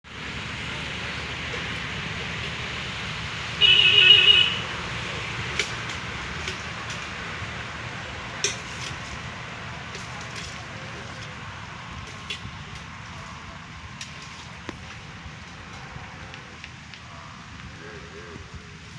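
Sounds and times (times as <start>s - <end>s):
vehicle horn: 3.6s - 4.8s.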